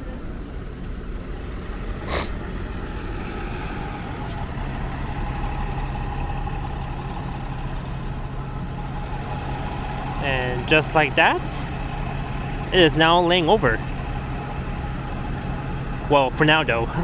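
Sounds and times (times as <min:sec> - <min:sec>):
bus engine idling: 0:00.0 - 0:17.0
air hiss: 0:02.0 - 0:02.4.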